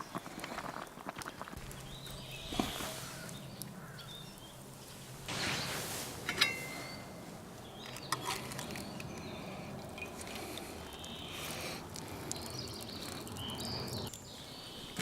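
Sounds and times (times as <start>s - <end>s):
bird chirps: 1.6s - 4.6s, 12.4s - 15.0s.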